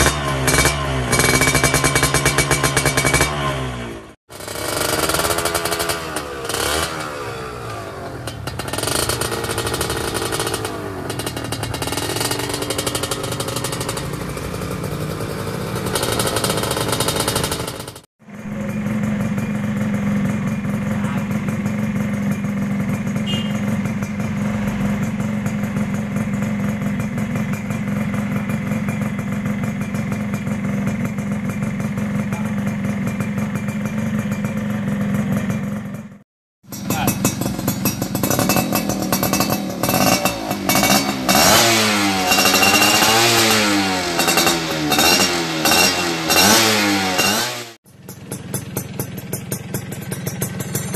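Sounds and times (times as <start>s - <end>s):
motorcycle engine at steady revs: 0.0s - 50.9s
two-stroke motorcycle engine revving: 0.0s - 50.9s.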